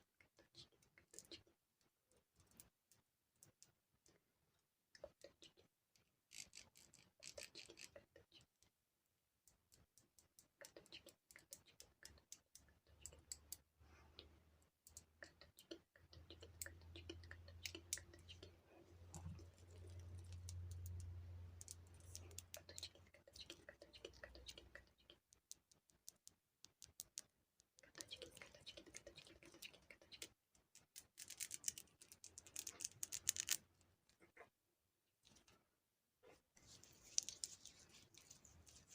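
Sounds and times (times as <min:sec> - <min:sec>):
faint clicking and tapping: 0:00.1 - 0:08.8, 0:09.4 - 0:34.5, 0:36.6 - 0:38.9.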